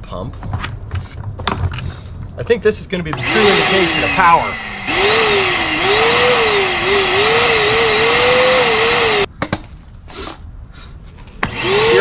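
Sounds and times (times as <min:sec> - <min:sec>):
shop vacuum motor whine: 0:03.1 - 0:09.3, 0:11.4 - 0:12.0.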